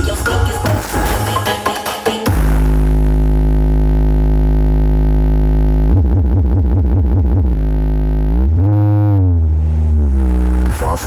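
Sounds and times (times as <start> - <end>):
deep electronic bass: 2.3 - 11.0.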